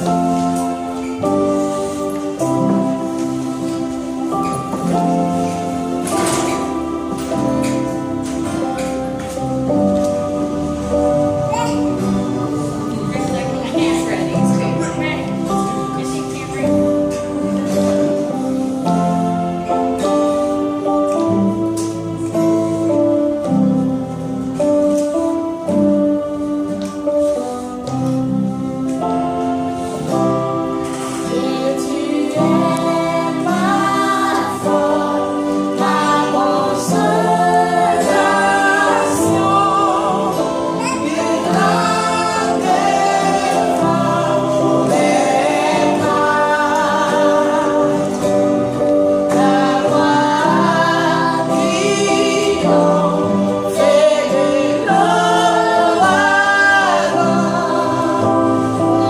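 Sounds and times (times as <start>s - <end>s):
instrumental accompaniment: 0.0s - 59.0s
woman and children singing: 30.8s - 59.0s.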